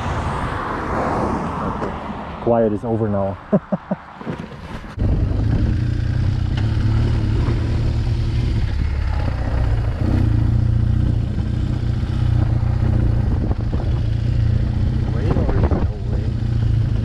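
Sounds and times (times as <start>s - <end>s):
motorcycle engine idling: 8.6s - 11.6s.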